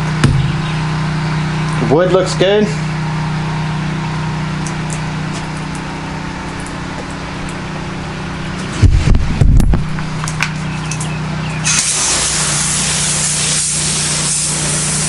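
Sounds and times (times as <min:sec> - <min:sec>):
loud low thumps: 0:00.0 - 0:01.0, 0:08.7 - 0:10.2
pressure washer engine running: 0:00.0 - 0:15.0.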